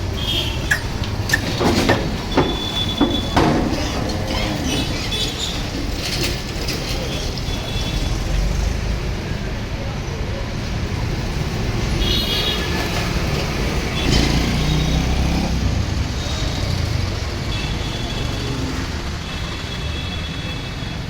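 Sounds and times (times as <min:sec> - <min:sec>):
vehicle engine rumbling: 0:00.0 - 0:09.4
outdoor background noise: 0:00.0 - 0:21.0
knock: 0:00.7 - 0:04.4.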